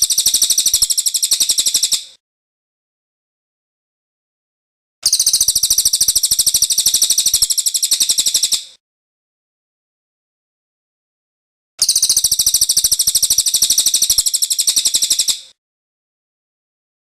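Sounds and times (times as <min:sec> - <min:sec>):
bird singing rolling trill: 0:00.0 - 0:02.0, 0:11.8 - 0:15.4.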